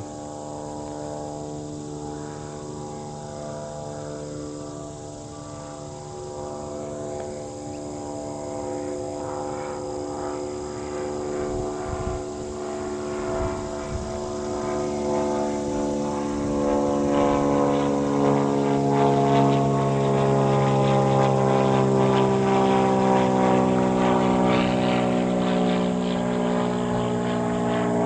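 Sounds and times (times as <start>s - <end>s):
airplane engines droning: 0.0s - 28.0s.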